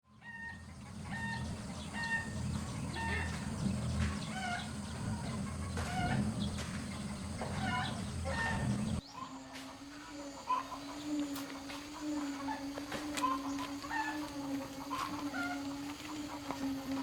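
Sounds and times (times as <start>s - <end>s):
chickens clucking: 0.2s - 17.0s
steady low rumble: 0.6s - 9.1s.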